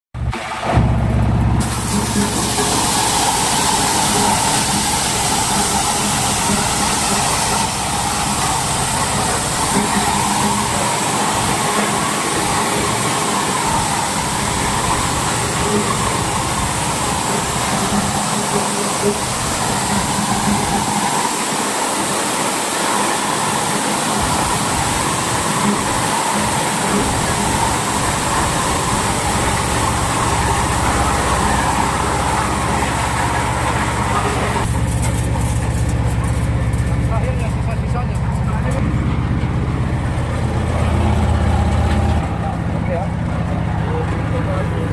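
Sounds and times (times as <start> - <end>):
corn sheller machine whirring: 0.2 - 44.9.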